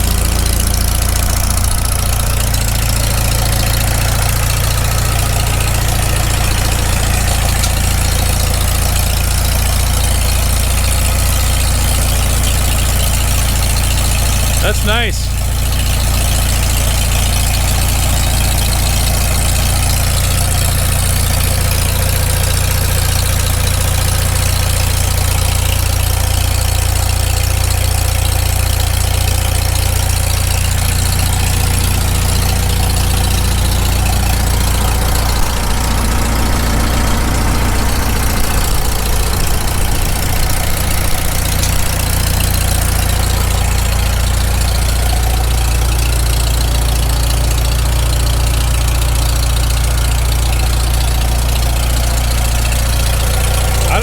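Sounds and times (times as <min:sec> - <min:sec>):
tractor engine idling: 0:00.0 - 0:54.0.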